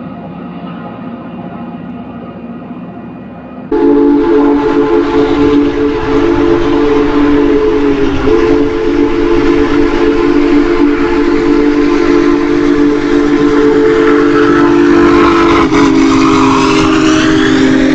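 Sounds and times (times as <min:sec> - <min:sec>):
rushing rail noise: 0:00.0 - 0:17.9
train horn chord: 0:03.7 - 0:17.9.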